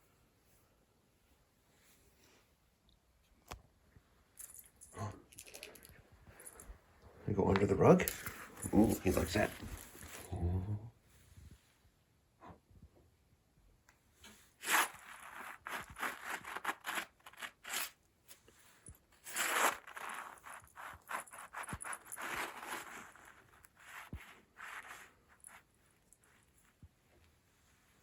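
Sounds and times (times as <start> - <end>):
rug rustling and scraping: 8.1 - 10.3, 14.5 - 27.0.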